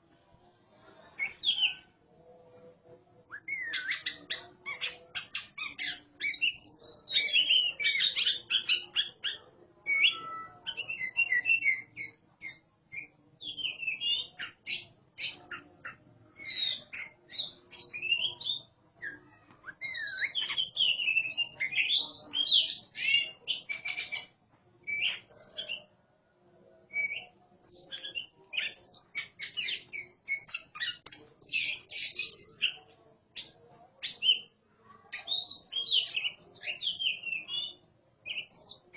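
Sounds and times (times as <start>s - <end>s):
birds singing whistles and chirps: 3.3s - 15.7s, 16.4s - 24.3s, 35.2s - 38.8s.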